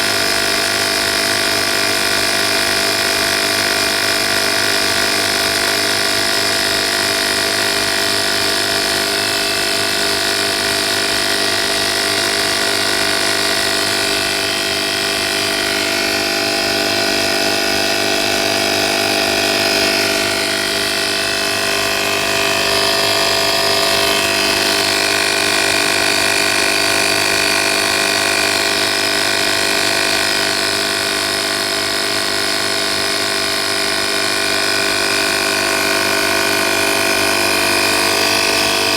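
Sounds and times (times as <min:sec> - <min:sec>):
air compressor running: 0:00.0 - 0:38.9.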